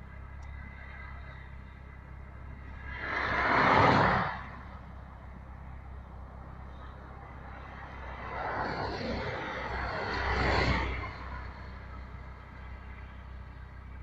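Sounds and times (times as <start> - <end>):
low road rumble: 0.0 - 14.0
vehicle passing by: 2.6 - 4.9, 7.2 - 12.0.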